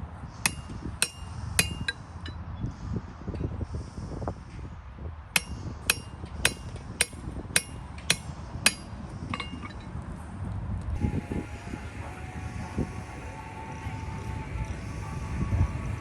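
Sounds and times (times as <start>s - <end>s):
hammer striking metal: 0.5s - 2.0s, 5.4s - 9.7s.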